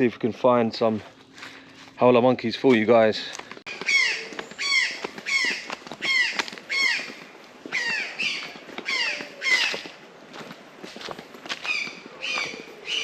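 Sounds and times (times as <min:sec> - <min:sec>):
bird calling: 0:03.7 - 0:10.0, 0:11.6 - 0:13.0.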